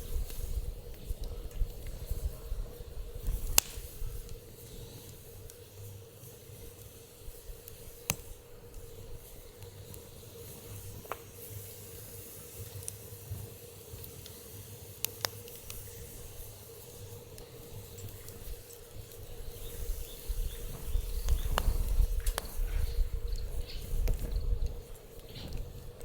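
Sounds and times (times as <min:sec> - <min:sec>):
fire crackling pops: 0:00.0 - 0:26.0
wood fire hissing: 0:00.0 - 0:26.0.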